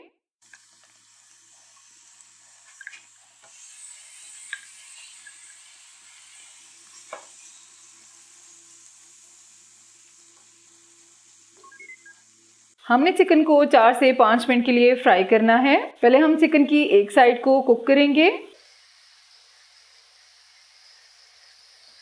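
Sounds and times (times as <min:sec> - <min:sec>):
chicken sizzling in hot oil: 0:00.4 - 0:13.4, 0:18.6 - 0:22.0.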